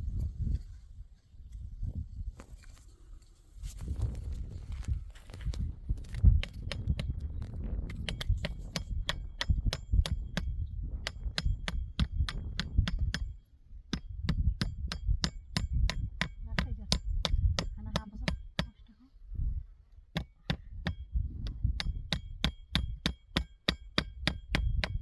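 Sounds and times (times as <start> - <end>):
hammer striking nails: 7.9 - 18.7, 20.1 - 25.0.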